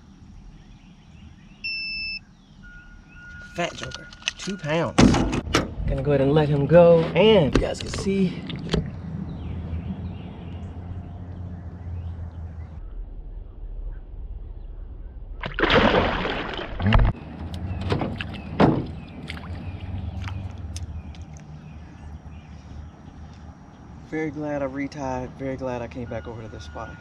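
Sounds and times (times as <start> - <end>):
low hum: 0.0 - 25.4
fish splashing into water: 15.4 - 17.2, 18.0 - 21.5.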